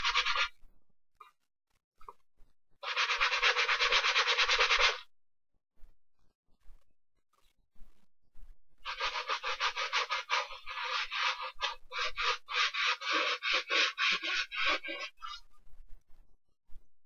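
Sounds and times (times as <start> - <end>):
brush scrubbing a sneaker: 0.0 - 0.5, 2.8 - 5.0, 8.9 - 15.4.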